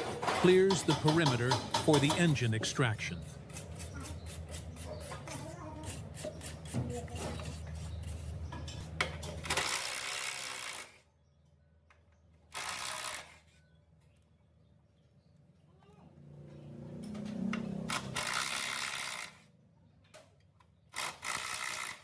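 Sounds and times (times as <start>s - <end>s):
tool motor hum with rattling: 3.2s - 11.1s, 12.5s - 13.6s, 17.0s - 19.5s, 20.9s - 22.0s.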